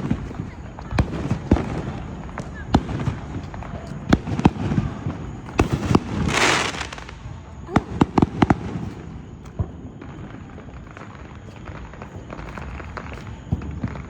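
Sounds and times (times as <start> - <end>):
fireworks bangs and cracks: 0.0 - 14.0
firework hissing rush: 5.5 - 7.2.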